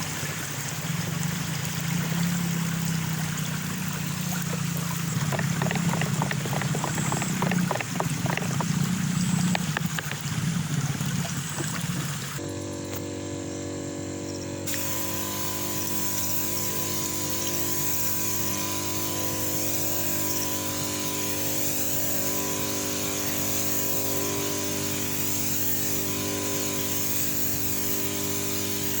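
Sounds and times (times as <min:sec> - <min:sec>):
running water splashing: 0:00.0 - 0:12.4
machine hum with hiss: 0:00.2 - 0:29.0.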